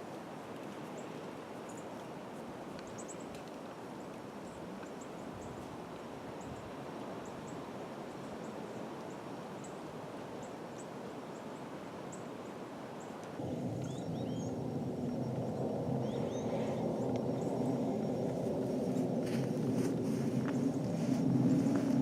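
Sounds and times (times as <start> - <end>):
wind rustling through trees: 0.0 - 22.0
small birds chirping: 13.0 - 19.0.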